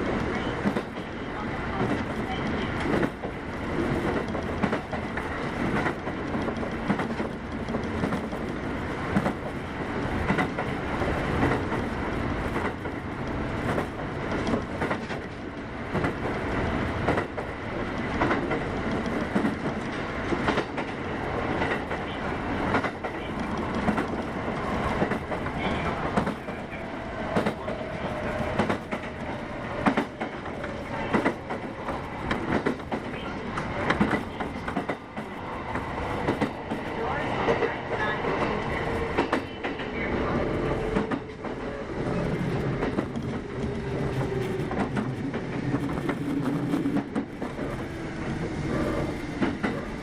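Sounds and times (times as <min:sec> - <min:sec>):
electric train wheels clicking: 0:00.0 - 0:40.0
faint train whine: 0:00.0 - 0:50.0.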